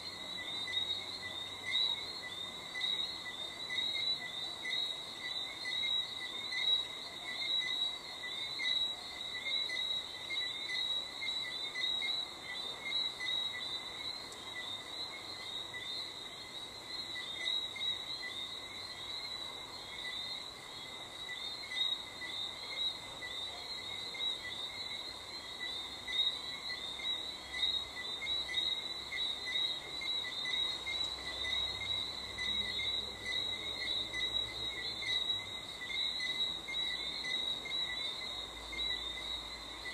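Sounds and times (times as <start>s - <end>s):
crickets trilling: 0.0s - 39.9s
frogs calling: 0.0s - 39.9s.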